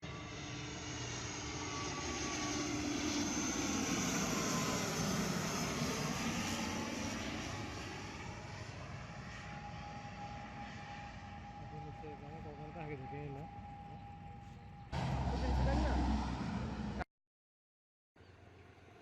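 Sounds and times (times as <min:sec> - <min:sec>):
airliner engine noise passing overhead: 0:00.0 - 0:17.1, 0:18.2 - 0:19.0
jet whine dropping in pitch: 0:11.7 - 0:17.1.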